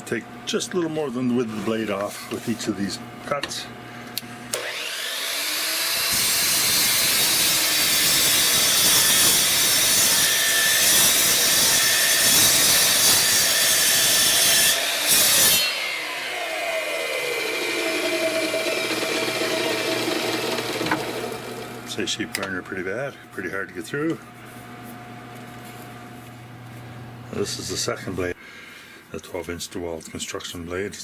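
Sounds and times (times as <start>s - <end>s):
chop saw cutting wood: 4.5s - 21.8s
saw blade winding down whine: 4.5s - 22.0s.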